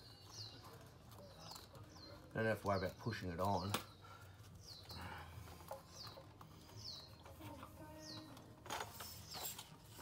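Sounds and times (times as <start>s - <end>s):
birds whistling: 0.0s - 0.7s, 1.4s - 7.4s.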